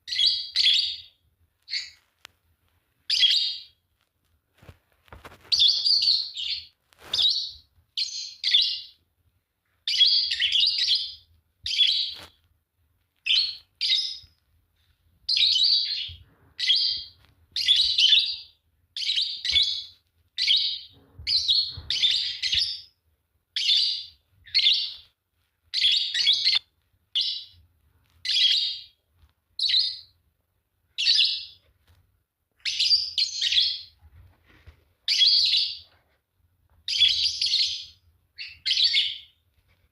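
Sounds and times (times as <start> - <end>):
lovebirds chirping in shrill bursts: 1.7 - 2.0.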